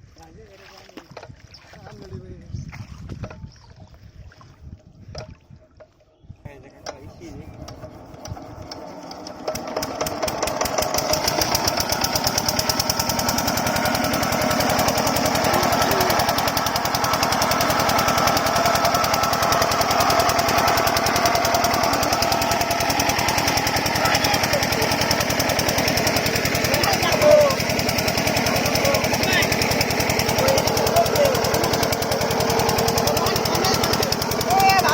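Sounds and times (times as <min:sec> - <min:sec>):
diesel pump engine knocking: 0:06.8 - 0:34.9.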